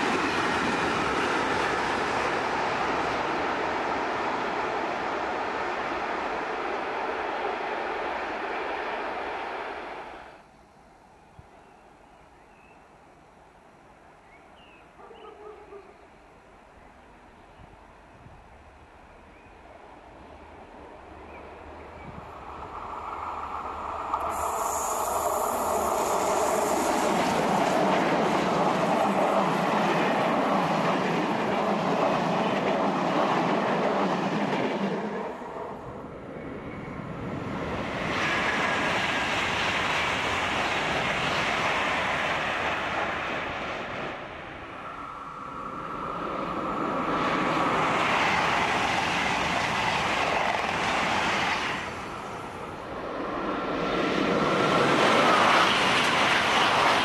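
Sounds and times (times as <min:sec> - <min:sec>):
train wheels on rails: 0:00.0 - 0:10.4, 0:21.3 - 0:57.0
high thin whine: 0:22.5 - 0:27.5.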